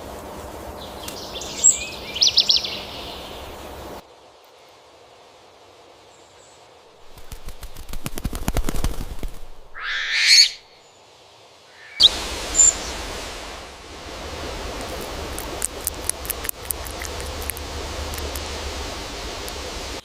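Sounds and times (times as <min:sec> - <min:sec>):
outdoor background hiss: 0:00.0 - 0:20.0
high chirp: 0:09.8 - 0:10.7, 0:11.8 - 0:12.9
harsh bird call: 0:09.8 - 0:10.8, 0:11.7 - 0:12.9
clicks and scratches: 0:14.8 - 0:18.5.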